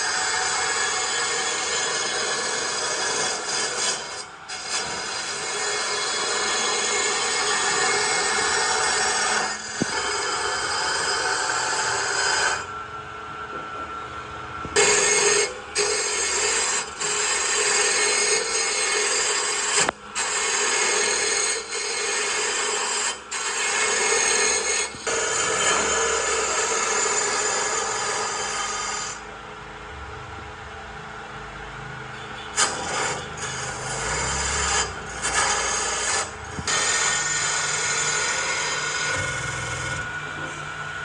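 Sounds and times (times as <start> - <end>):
tool rasping wood: 0.0 - 12.6, 14.8 - 29.2.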